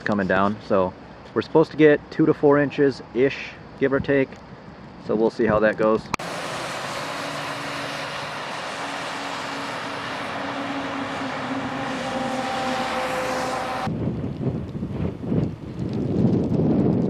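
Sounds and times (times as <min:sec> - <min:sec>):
vehicle road and engine noise: 0:06.1 - 0:17.0.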